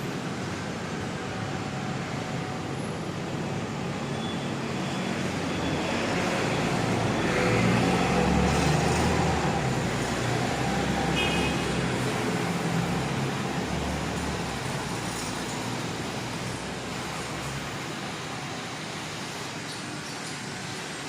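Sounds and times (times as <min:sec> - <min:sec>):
street traffic: 0:00.0 - 0:21.0.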